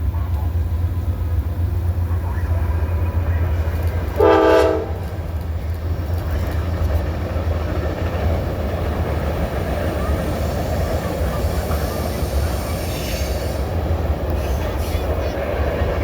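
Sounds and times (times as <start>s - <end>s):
train rumbling: 0.0s - 16.0s
train horn blast: 4.1s - 5.2s.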